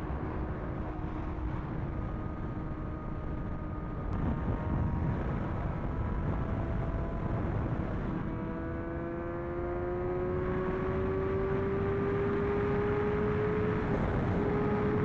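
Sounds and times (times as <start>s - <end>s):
wind and road noise: 0.0s - 15.0s
motorcycle engine accelerating: 0.1s - 15.0s.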